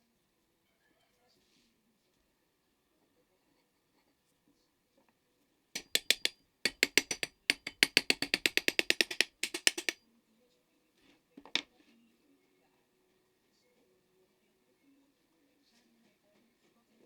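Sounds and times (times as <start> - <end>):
sharp light taps: 5.8 - 10.0.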